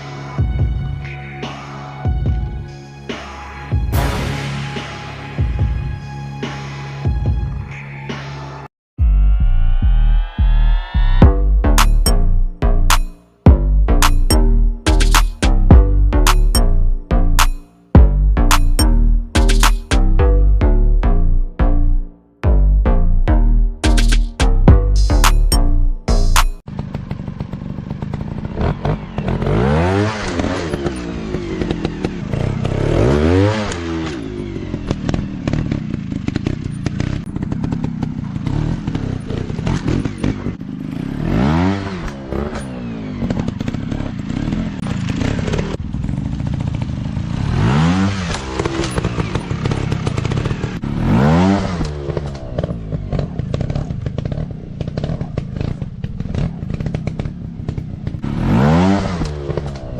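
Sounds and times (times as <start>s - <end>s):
dirt bike engines revving: 26.4s - 59.9s.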